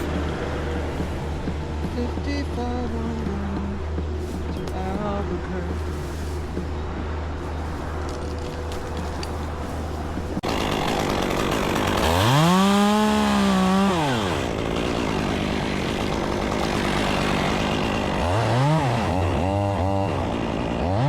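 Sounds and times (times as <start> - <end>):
chainsaw revving: 10.4 - 21.0.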